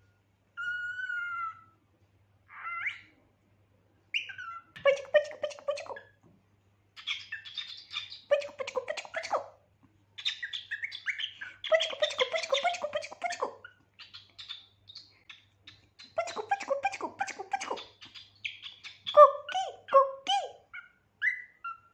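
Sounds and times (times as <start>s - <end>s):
cockatiel chirping: 0.6s - 1.7s, 2.5s - 3.1s, 4.1s - 5.7s, 7.0s - 9.4s, 10.2s - 19.8s, 20.7s - 21.9s.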